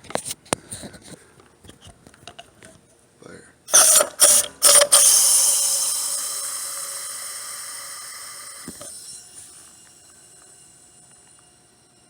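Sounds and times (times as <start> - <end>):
gas gun blasting into drain: 3.7 - 9.7
hissing blast with whistle: 3.7 - 9.7.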